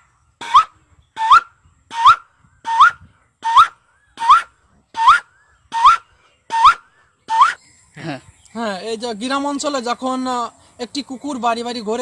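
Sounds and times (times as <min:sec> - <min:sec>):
man imitating bird call: 0:00.4 - 0:08.6.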